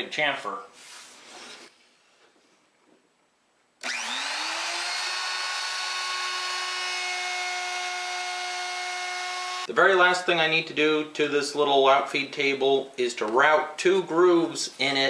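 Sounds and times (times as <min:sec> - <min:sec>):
wood router motor whining: 0:03.8 - 0:09.7.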